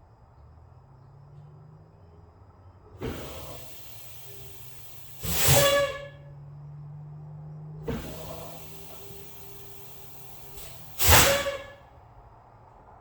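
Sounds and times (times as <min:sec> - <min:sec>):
diesel engine idling: 0:00.5 - 0:11.8
air brake hisses: 0:03.0 - 0:06.3, 0:07.8 - 0:11.9.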